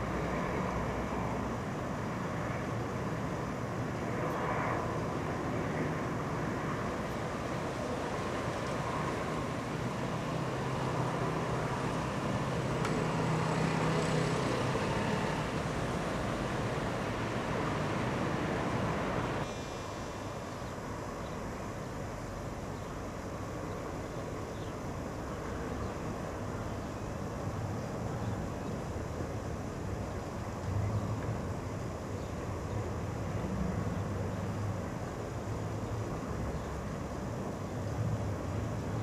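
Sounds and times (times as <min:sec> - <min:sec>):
diesel locomotive engine humming: 0:06.3 - 0:19.9.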